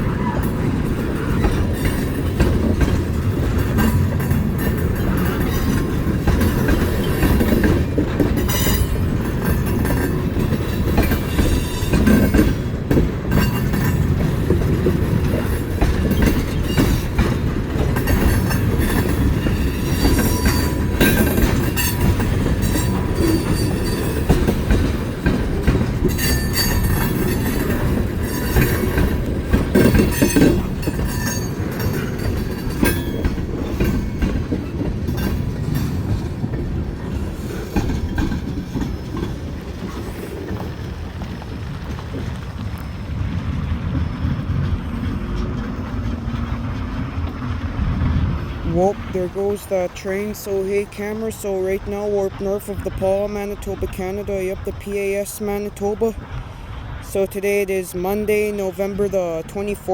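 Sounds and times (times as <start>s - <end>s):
train wheels clicking over rail joints: 0.0s - 59.9s.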